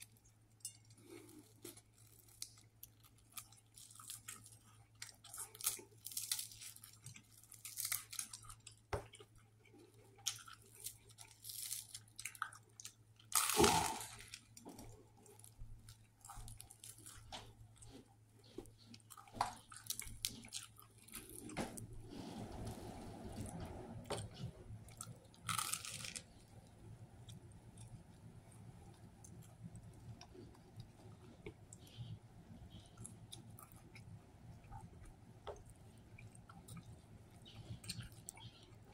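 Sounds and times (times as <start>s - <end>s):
chewing crunchy sandwich: 0.0s - 22.7s, 23.4s - 38.9s.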